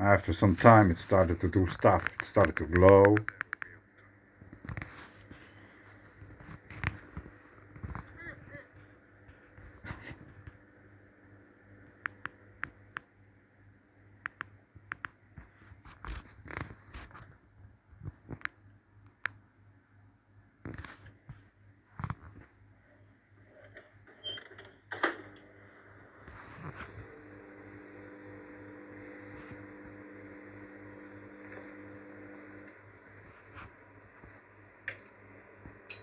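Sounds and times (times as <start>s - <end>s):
microwave oven humming: 23.7s - 36.0s.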